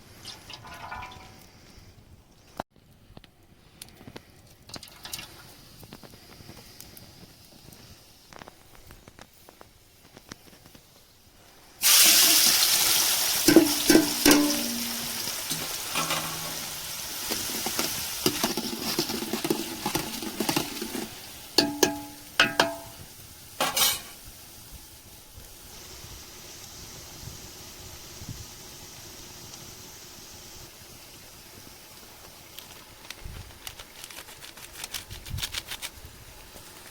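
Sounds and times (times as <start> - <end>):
food sizzling in hot oil: 11.6 - 33.0
metal spoon scraping a pan: 13.5 - 23.0, 23.6 - 24.2.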